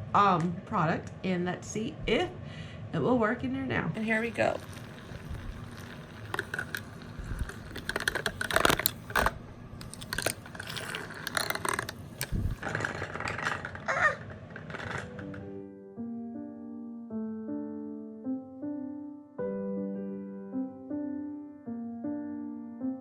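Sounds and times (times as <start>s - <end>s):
small washing machine running: 4.0s - 15.0s.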